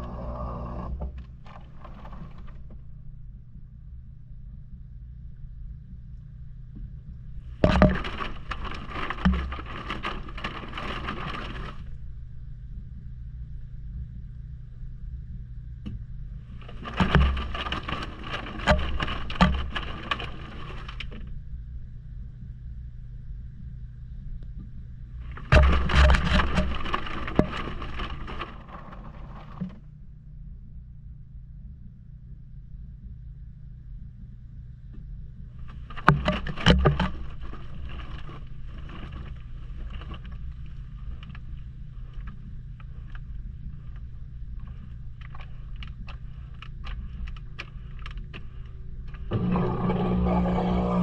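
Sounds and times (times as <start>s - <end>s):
washing machine running: 0.0s - 3.0s, 7.2s - 12.2s, 16.4s - 21.4s, 25.2s - 30.0s, 47.3s - 51.0s
washing machine low hum: 0.0s - 51.0s
rattling and knocking: 7.5s - 12.0s, 16.6s - 21.3s, 25.2s - 29.8s, 35.6s - 41.6s
rapid knocks against camera: 25.2s - 29.8s.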